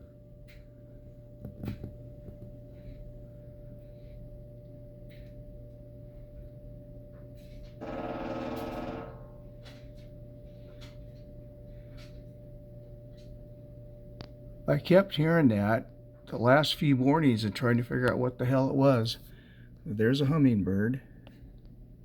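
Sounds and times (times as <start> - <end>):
woodpecker drumming on metal: 7.8 - 9.5.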